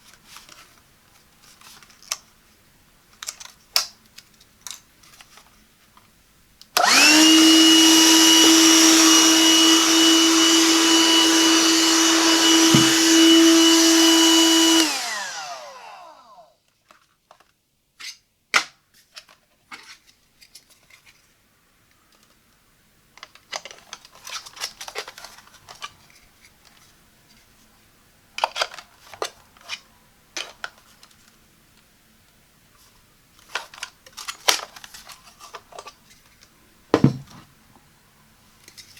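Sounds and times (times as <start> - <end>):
plastic rustling and scraping: 0.0 - 6.1, 18.9 - 21.4, 23.2 - 27.7, 32.8 - 37.5
heavy thump: 12.6 - 13.1, 37.0 - 37.4.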